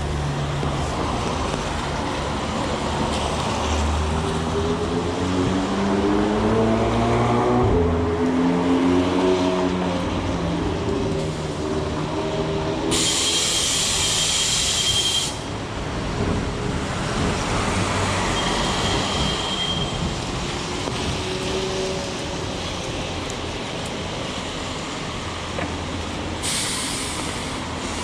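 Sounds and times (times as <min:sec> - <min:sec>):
heavy rain: 0:07.7 - 0:28.0
loud hiss: 0:12.9 - 0:15.6, 0:26.4 - 0:28.0.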